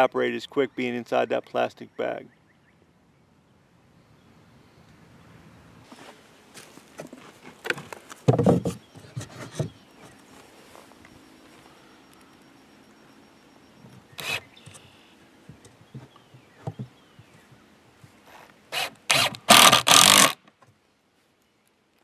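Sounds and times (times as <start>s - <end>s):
loud scraping rasps: 14.2s - 14.4s, 18.2s - 20.4s.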